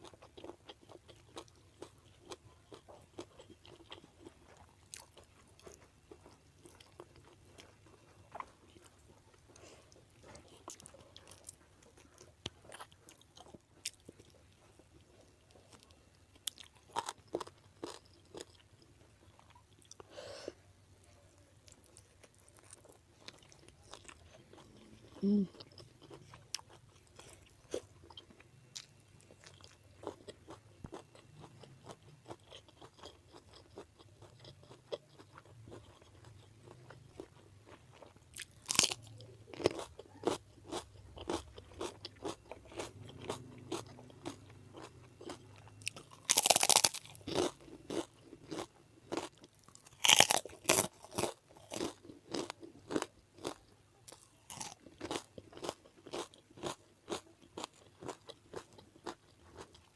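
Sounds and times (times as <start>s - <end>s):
loud crunchy bites: 37.9s - 59.7s.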